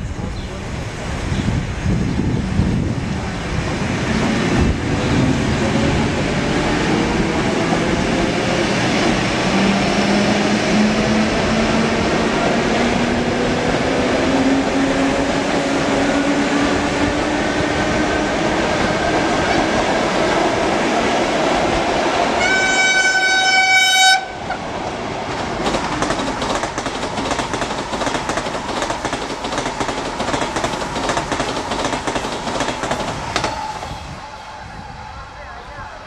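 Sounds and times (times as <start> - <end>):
train rumble: 0.0 - 36.0
train running noise with whine: 0.0 - 36.0
high train horn: 22.4 - 24.6
wheels clicking over rail joints: 25.3 - 33.7.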